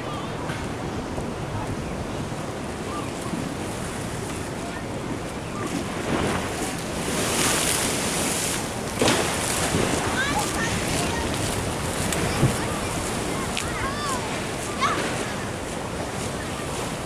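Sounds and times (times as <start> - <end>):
wind on microphone: 0.8 - 17.0
ocean surf washing in: 5.8 - 17.0.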